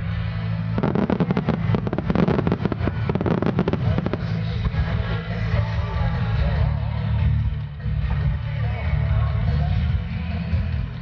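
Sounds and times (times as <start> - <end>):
music: 0.0 - 11.0
firework shells bursting and crackling: 0.7 - 5.4.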